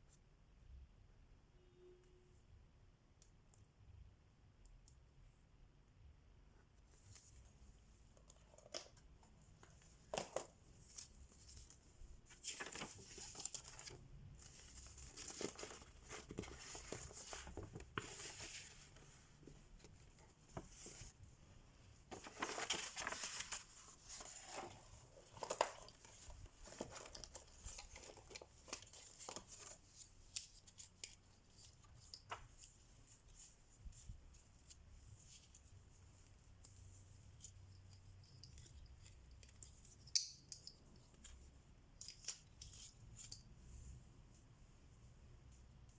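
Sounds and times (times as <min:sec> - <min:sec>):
rustling and crinkling: 0:06.6 - 0:40.1.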